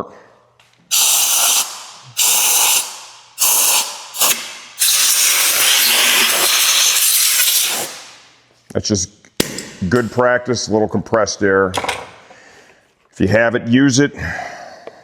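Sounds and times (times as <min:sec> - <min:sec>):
compressed air blasting: 0:00.9 - 0:08.3.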